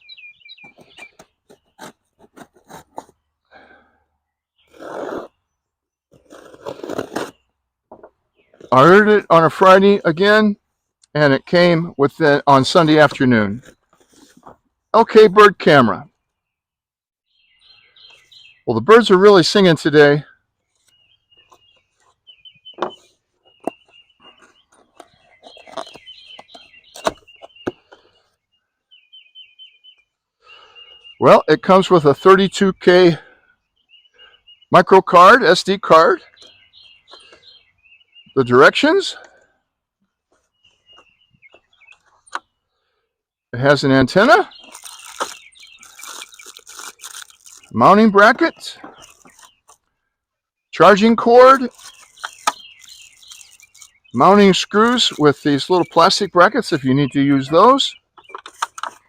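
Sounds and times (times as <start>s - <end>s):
bird chirping: 0.0s - 59.0s
songbirds singing: 0.0s - 59.0s
cardboard and wrapping rustling: 0.6s - 3.2s, 13.6s - 14.6s, 22.9s - 27.5s, 44.6s - 47.8s, 48.8s - 49.8s, 51.6s - 54.0s
packaging clicks and crackles: 44.6s - 47.7s.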